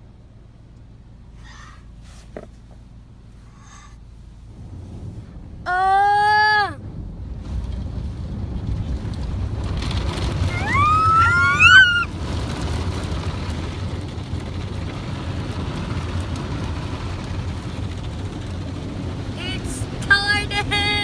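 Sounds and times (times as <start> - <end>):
car wash machinery rumble: 0.0 - 21.0
high squeal: 10.5 - 12.1.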